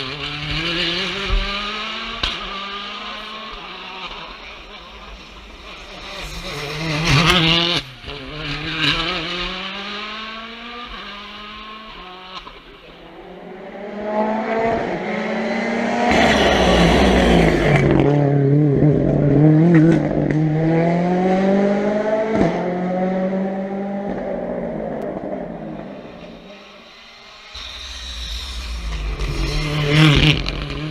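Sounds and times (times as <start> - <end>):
rally car engines revving: 0.0 - 30.9
tyre squeal: 16.1 - 17.9.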